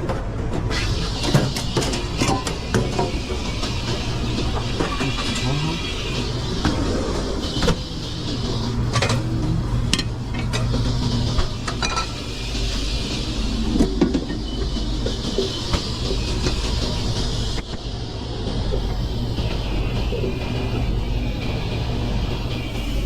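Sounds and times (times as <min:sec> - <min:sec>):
pans and utensils clanking: 0:11.6 - 0:12.2.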